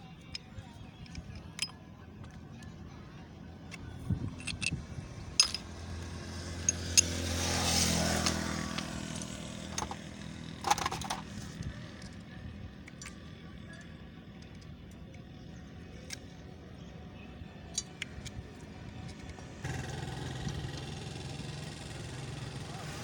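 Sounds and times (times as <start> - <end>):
metal tools clinking: 0.2 - 1.8, 3.7 - 12.1
vehicle engine: 1.0 - 17.0, 17.6 - 23.0.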